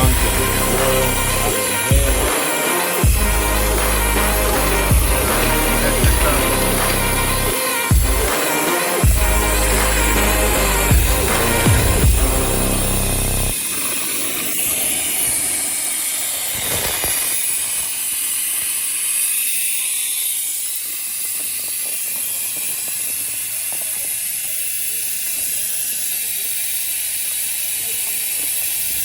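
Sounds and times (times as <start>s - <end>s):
background music: 0.0s - 13.6s
loud high-pitched hiss: 0.0s - 29.0s.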